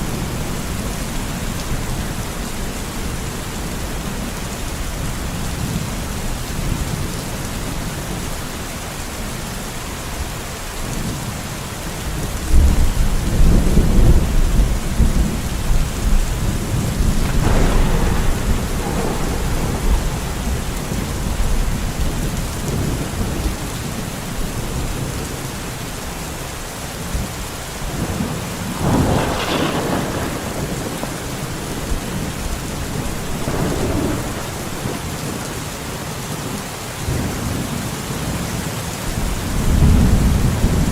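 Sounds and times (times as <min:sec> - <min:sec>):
heavy rain falling: 0:00.0 - 0:40.9
thunder rumbling: 0:12.4 - 0:25.7, 0:27.0 - 0:36.4, 0:39.1 - 0:40.9.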